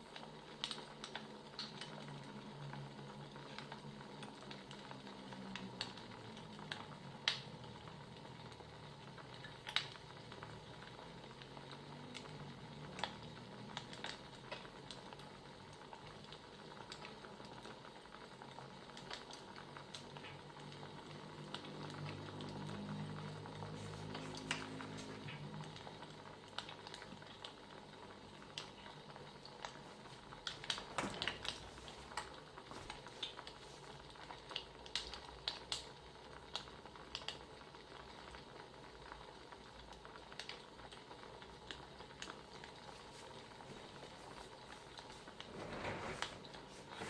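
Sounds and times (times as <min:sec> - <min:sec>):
wood fire crackling: 0:00.0 - 0:47.0
fire pops and snaps: 0:09.3 - 0:10.7, 0:28.4 - 0:38.4.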